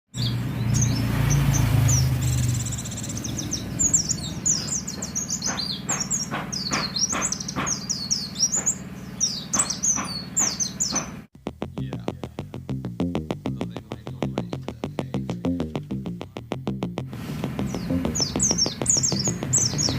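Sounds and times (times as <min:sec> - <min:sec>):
bird chirping: 0:00.1 - 0:19.9
electronic music with steady beat: 0:11.0 - 0:19.9
low rumble: 0:11.4 - 0:19.9.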